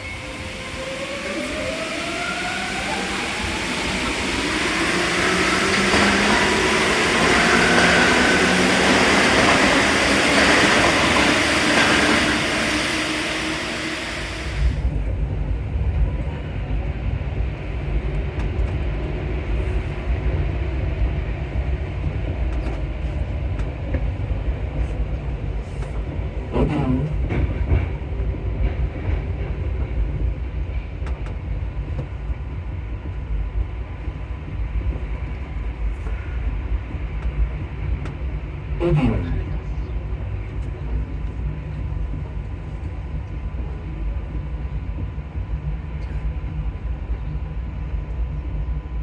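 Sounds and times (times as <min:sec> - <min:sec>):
train motors whining: 0:00.6 - 0:14.9
train rumbling with light clicks: 0:02.4 - 0:49.0
loud hiss: 0:07.3 - 0:14.8.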